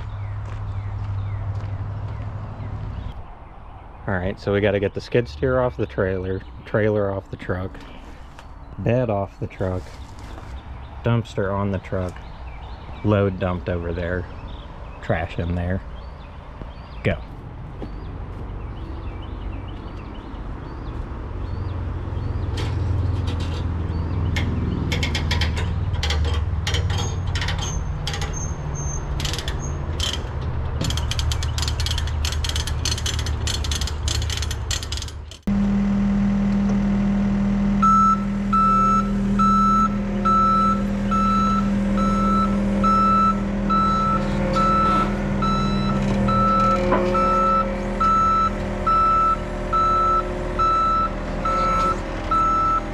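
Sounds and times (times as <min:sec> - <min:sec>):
heavy equipment engine running: 0:17.4 - 0:52.9
metal clanks and knocks: 0:22.4 - 0:35.5, 0:43.6 - 0:49.8
back-up alarm beeping: 0:35.5 - 0:52.9.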